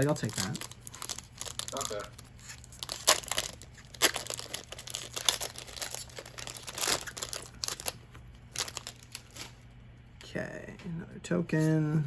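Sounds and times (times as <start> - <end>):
foil wrapper crinkling: 0.0 - 9.6
foil wrapper tearing: 0.0 - 9.6.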